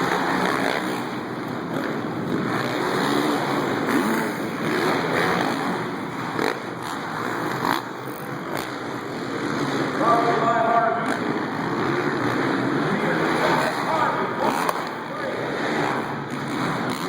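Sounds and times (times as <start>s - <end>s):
dirt bike engines revving: 0.0s - 17.0s
steady rushing noise: 8.0s - 17.0s.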